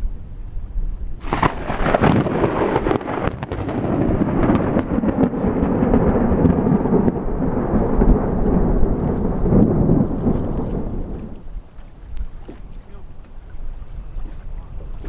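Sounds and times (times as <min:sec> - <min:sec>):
rain: 0:00.0 - 0:13.5
raindrop ticks: 0:01.0 - 0:12.6
rolling thunder: 0:01.2 - 0:11.4.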